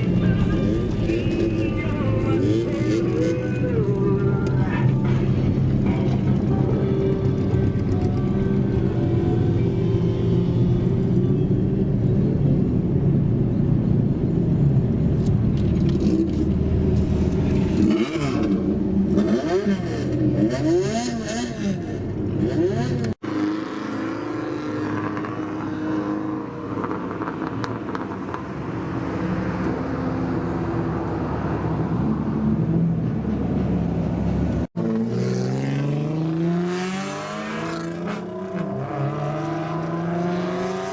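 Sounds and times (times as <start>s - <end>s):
car engines running: 0.0s - 23.2s.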